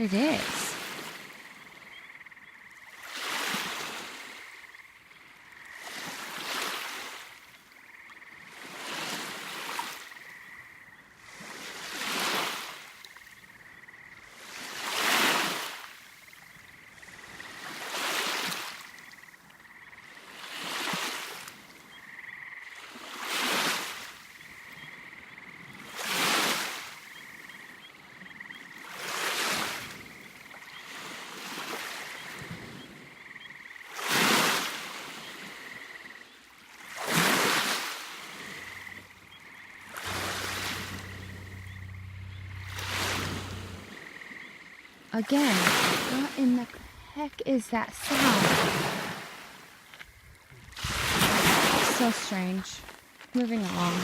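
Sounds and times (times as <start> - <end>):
small waves washing onto beach: 0.0 - 1.7, 2.8 - 5.0, 5.6 - 10.4, 11.1 - 13.4, 14.2 - 21.9, 22.7 - 24.8, 25.6 - 54.0
faint high-pitched tone: 38.9 - 44.1.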